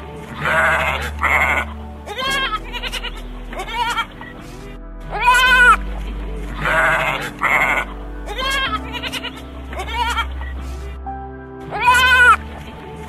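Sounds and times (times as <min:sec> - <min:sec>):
background music: 0:00.0 - 0:13.0
animal bleating: 0:00.4 - 0:04.1, 0:05.1 - 0:05.8, 0:06.6 - 0:10.5, 0:11.7 - 0:12.4.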